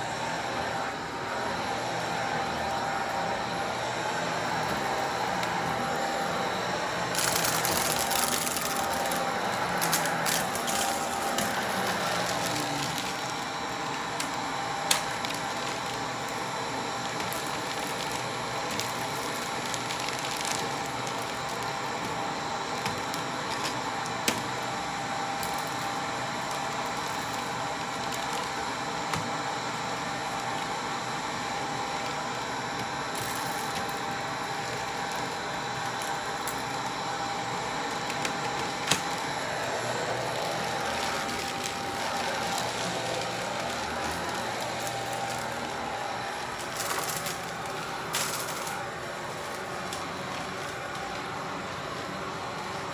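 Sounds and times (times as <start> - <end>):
vacuum cleaner running: 0.0 - 52.9
debris clicking in vacuum: 7.1 - 16.4, 17.0 - 24.5, 32.8 - 37.0, 40.1 - 52.7.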